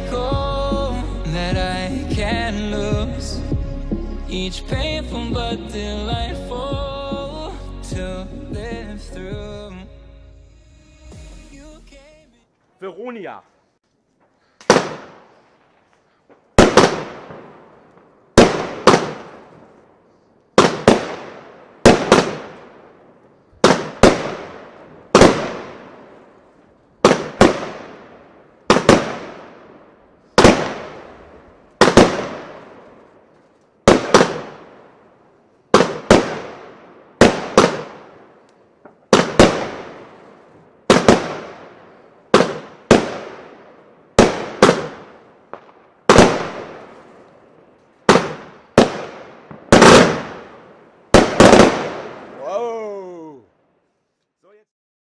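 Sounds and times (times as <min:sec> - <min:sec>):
fireworks bangs: 0:14.2 - 0:53.4.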